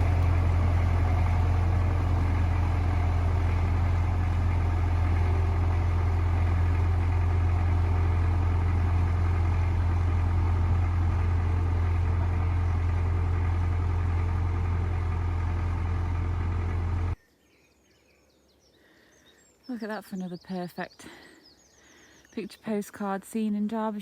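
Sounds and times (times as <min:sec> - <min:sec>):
tractor diesel engine running: 0:00.0 - 0:17.2.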